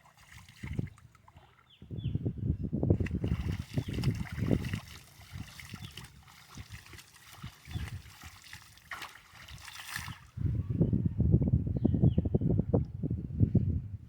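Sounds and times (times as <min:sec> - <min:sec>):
water trickling and splashing: 0:00.0 - 0:01.8, 0:02.9 - 0:10.4.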